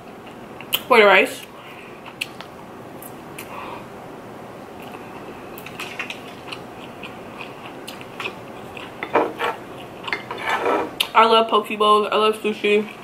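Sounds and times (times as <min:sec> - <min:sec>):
close-miked chewing: 0:04.8 - 0:09.0
wooden spoon scraping tray: 0:09.2 - 0:09.6, 0:10.2 - 0:10.9.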